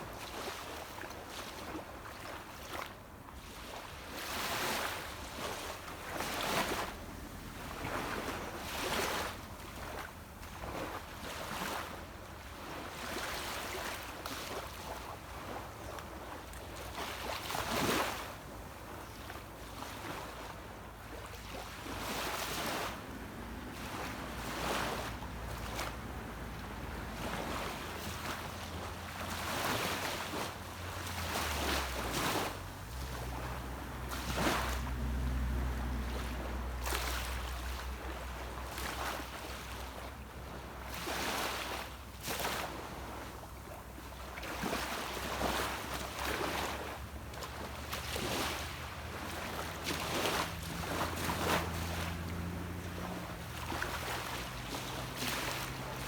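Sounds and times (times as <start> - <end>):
sea waves washing onto beach: 0.0 - 56.0
distant boat engine drone: 20.6 - 40.9, 46.1 - 56.0.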